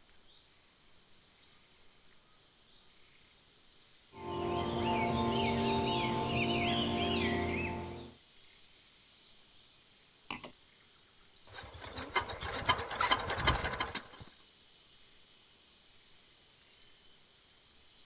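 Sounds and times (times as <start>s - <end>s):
faint high chirps: 4.2s - 8.1s.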